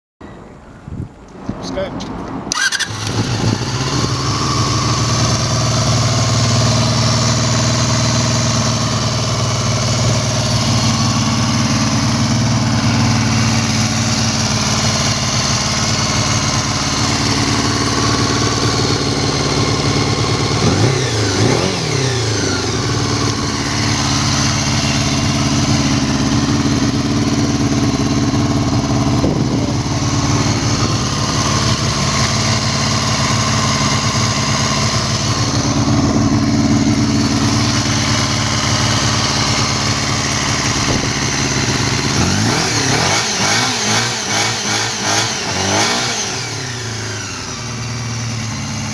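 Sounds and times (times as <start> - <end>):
motorcycle engine idling and revving: 2.2 - 48.9.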